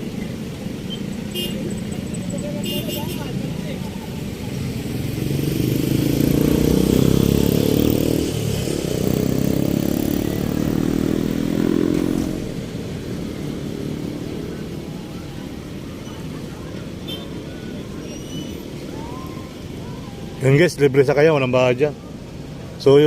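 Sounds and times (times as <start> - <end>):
traffic hum: 0.0 - 23.0
vehicle engine passing by: 3.3 - 15.4.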